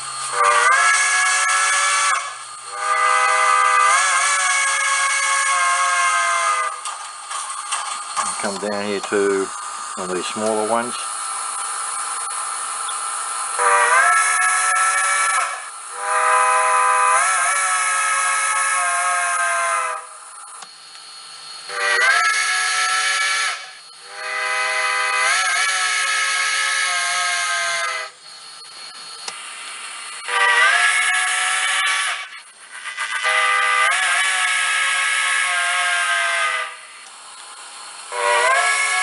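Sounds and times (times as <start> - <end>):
steam locomotive whistle: 0.0 - 6.9, 13.5 - 20.3, 21.5 - 29.0, 30.2 - 37.1, 38.1 - 39.0
steady steam hiss: 0.0 - 39.0.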